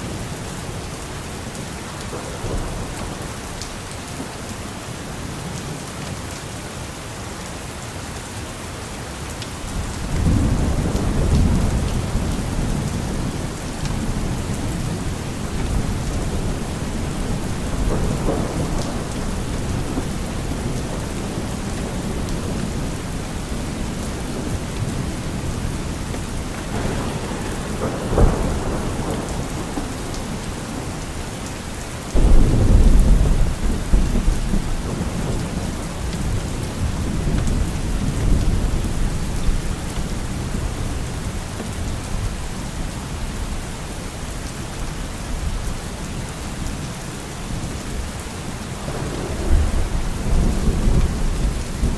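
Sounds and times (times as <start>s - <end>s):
heavy rain: 0.0s - 51.9s
rolling thunder rumble: 9.7s - 41.0s, 47.5s - 51.9s
thunder crack: 10.0s - 31.4s, 32.2s - 38.6s, 48.7s - 51.9s.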